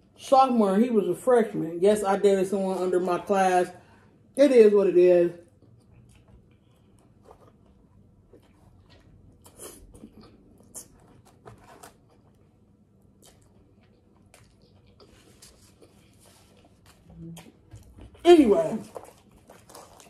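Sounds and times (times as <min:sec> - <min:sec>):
sandwich crunching: 0:05.5 - 0:20.0.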